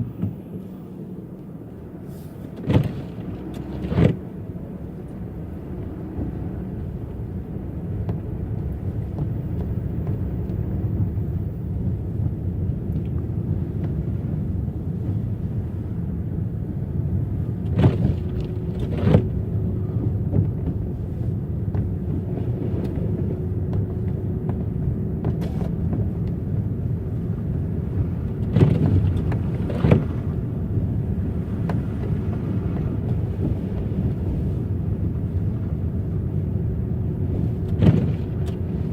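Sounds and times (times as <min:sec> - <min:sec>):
car tyres and engine rumbling: 0:00.0 - 0:38.9
car thumping over bumps: 0:02.5 - 0:04.2, 0:17.5 - 0:19.5, 0:21.6 - 0:36.0, 0:37.2 - 0:38.9.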